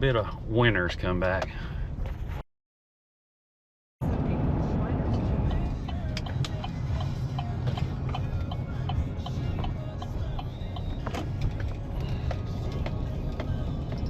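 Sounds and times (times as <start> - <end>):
pickup truck engine and road noise: 4.0 - 14.0.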